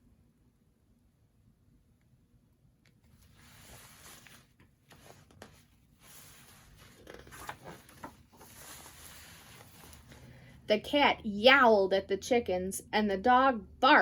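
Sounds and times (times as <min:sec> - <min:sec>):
paper pages rustling and turning: 0:03.1 - 0:10.4.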